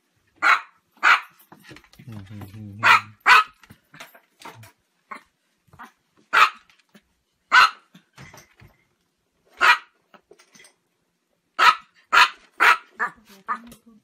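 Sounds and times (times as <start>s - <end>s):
small dog barking: 0.4s - 1.4s, 2.8s - 3.6s, 5.8s - 6.7s, 7.5s - 7.9s, 9.6s - 10.0s, 11.6s - 13.2s.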